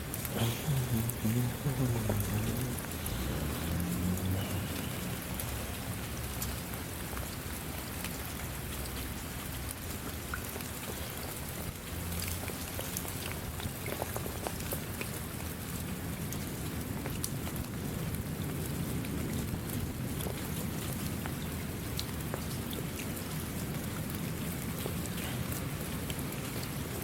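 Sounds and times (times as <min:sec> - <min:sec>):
steady rain falling: 0:00.0 - 0:27.0
faint low rumble: 0:00.3 - 0:06.1.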